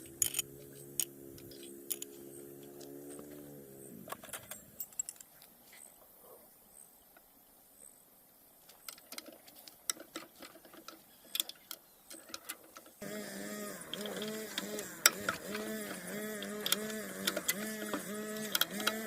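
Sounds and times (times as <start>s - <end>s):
small tools clicking and tapping: 0.0s - 3.4s, 4.1s - 5.5s, 8.7s - 13.0s, 13.8s - 19.0s.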